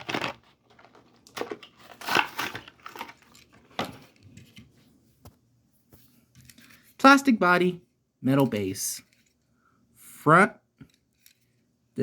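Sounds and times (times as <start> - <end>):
plastic packaging crinkling and tearing: 0.0 - 3.7.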